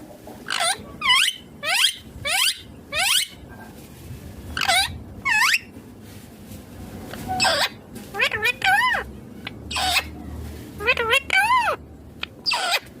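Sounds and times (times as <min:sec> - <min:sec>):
parakeet squawking: 0:00.4 - 0:03.4, 0:04.6 - 0:05.7, 0:07.3 - 0:10.2, 0:10.8 - 0:13.0.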